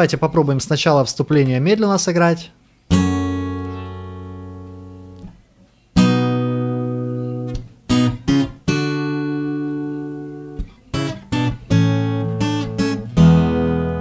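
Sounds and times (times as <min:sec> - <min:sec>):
fingerpicked acoustic guitar: 0:02.9 - 0:14.0.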